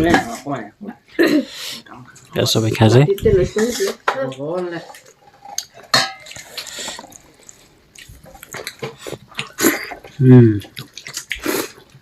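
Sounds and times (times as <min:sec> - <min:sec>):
wet smacking mouth noises: 0:06.4 - 0:12.0.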